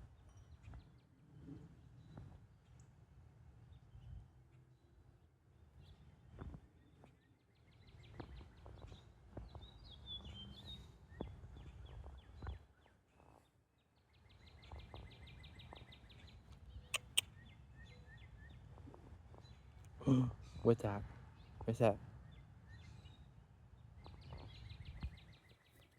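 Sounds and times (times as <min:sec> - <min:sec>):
bird trilling: 0:16.8 - 0:17.3
bird chirpy call: 0:16.8 - 0:18.0
sharp clicks: 0:17.0 - 0:17.3.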